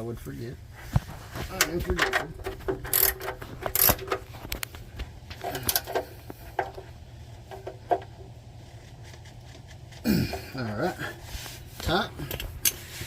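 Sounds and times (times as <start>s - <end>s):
low steady hum: 0.0s - 13.0s
wrench clicking on drain plug: 2.0s - 4.2s, 5.4s - 6.8s.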